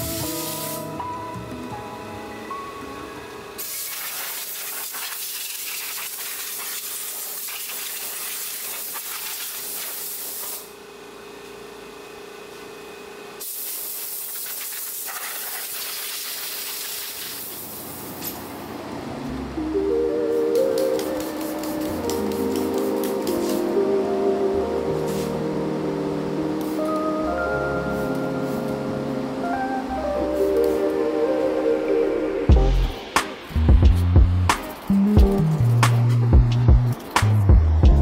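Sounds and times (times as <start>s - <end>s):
hissing jet of spray: 0.0s - 0.9s, 3.6s - 10.7s, 13.4s - 18.0s.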